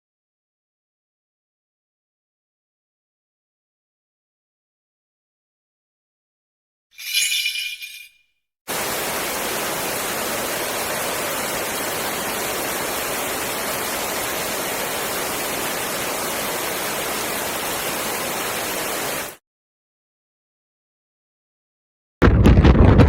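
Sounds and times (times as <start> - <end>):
water rushing: 8.7 - 19.4.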